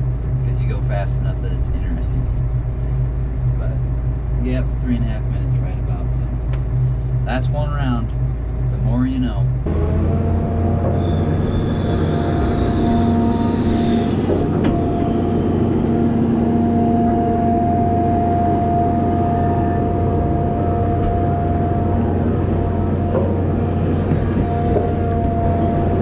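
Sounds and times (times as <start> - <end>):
steady whine: 0.0 - 26.0
truck diesel engine running: 0.0 - 26.0.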